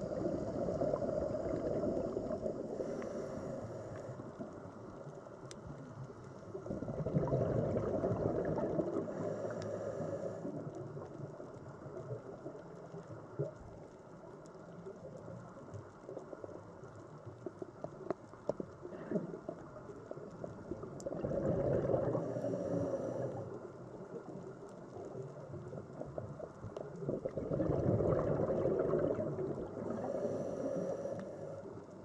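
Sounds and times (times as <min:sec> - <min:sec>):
small crackling clicks: 0:00.2 - 0:32.0
sea water surging: 0:21.1 - 0:23.6.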